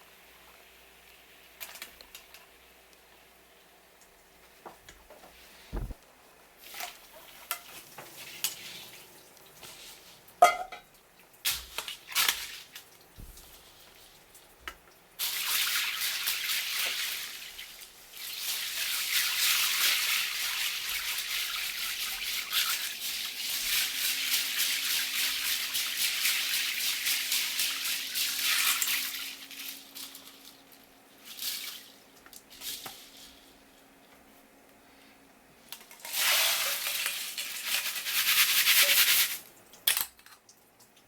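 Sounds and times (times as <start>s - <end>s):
tap water running: 11.8s - 33.0s.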